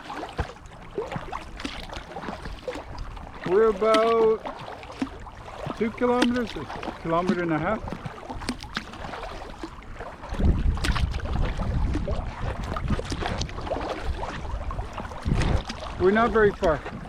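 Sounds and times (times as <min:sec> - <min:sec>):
paddle splashing in water: 0:00.0 - 0:17.0
wind buffeting microphone: 0:05.2 - 0:17.0.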